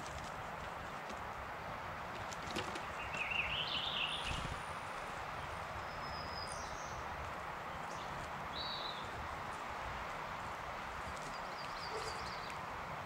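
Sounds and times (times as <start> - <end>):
steady background hiss: 0.0 - 13.0
wild birds calling: 2.8 - 7.1, 11.2 - 12.6.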